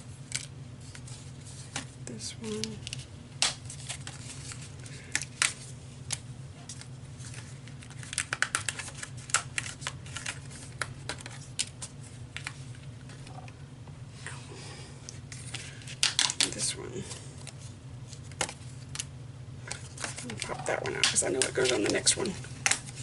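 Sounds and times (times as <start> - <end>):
steady low hum: 0.0 - 23.0
paper pieces clicking and tapping: 5.0 - 11.8, 15.3 - 16.6, 19.7 - 23.0.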